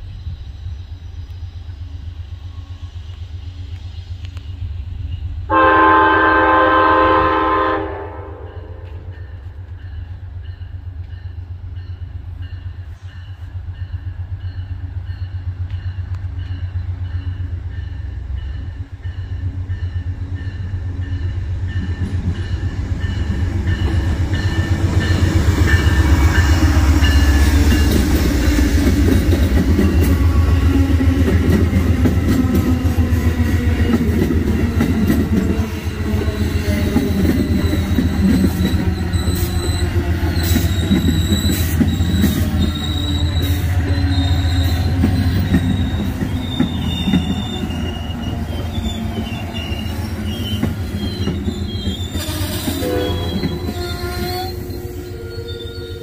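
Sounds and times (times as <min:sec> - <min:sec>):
wheel and rail noise: 0:00.0 - 0:06.3, 0:08.5 - 0:56.0
train engine rumble: 0:00.0 - 0:56.0
train horn blast: 0:05.5 - 0:09.2, 0:52.1 - 0:56.0.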